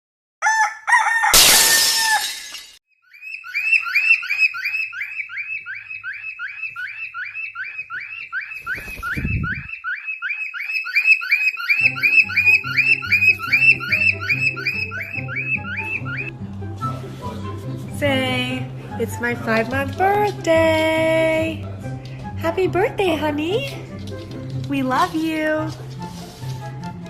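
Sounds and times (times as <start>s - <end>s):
bird chirping rapidly: 3.1s - 16.3s
music: 11.8s - 27.0s.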